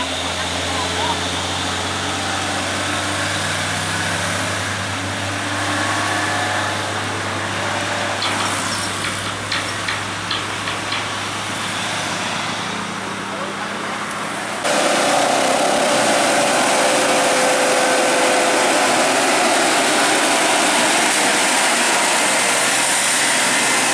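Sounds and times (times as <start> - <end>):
cars passing: 0.0 - 23.9
truck diesel engine under load: 0.0 - 23.9.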